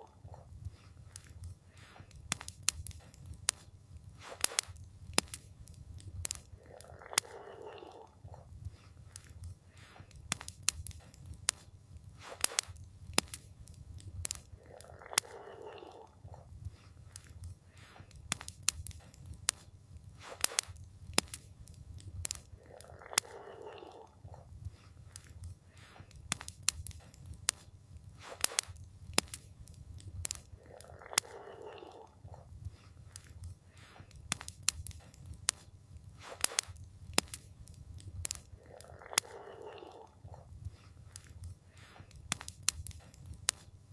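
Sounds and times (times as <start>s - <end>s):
fire low rumble: 0.0s - 43.9s
fire popping and snapping: 0.0s - 43.9s.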